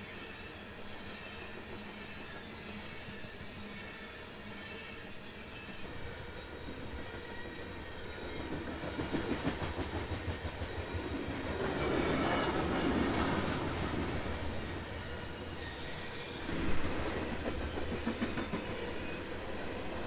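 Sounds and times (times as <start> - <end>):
freight train wheels clacking: 6.5 - 20.0.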